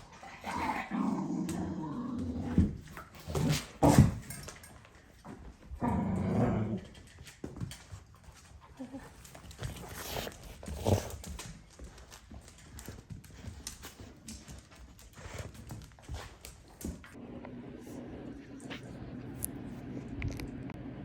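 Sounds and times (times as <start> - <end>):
dog growling: 0.0 - 2.8, 5.8 - 7.0.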